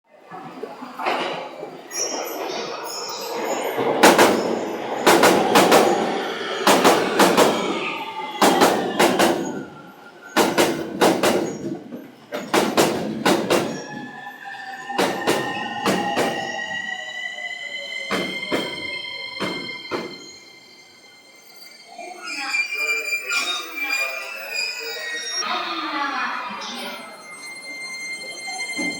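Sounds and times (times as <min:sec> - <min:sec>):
train whine gliding in pitch: 0:00.5 - 0:28.9
rolling hiss of wheels: 0:01.0 - 0:14.2
train wheels clacking over rail joints: 0:02.2 - 0:14.2, 0:14.9 - 0:16.8, 0:18.1 - 0:20.4.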